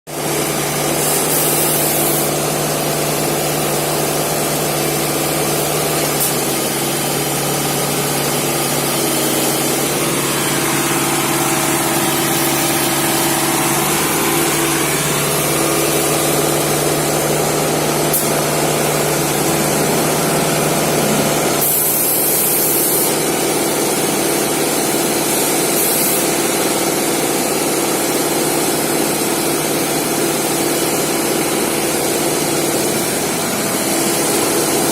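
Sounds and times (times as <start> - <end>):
machinery engine running: 0.1 - 34.9
short high hisses: 1.0 - 2.4, 21.6 - 23.2, 25.6 - 26.4.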